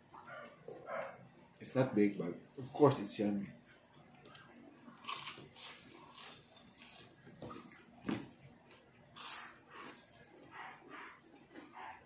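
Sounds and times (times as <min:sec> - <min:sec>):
crunchy chewing: 0:03.7 - 0:12.0.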